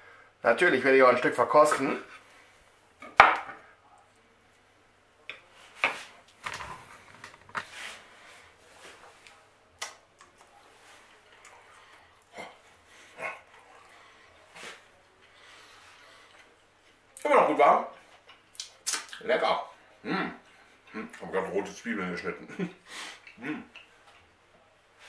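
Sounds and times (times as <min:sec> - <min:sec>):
man chewing with mouth smacks: 0:09.1 - 0:13.9
man murmuring: 0:23.4 - 0:23.8.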